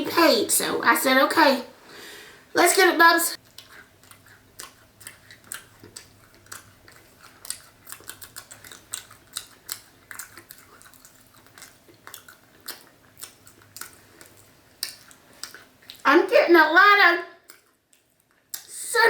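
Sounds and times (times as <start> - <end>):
faint steady hum: 0.0 - 19.0
chewing crumbly cake: 3.4 - 16.1, 17.4 - 18.8.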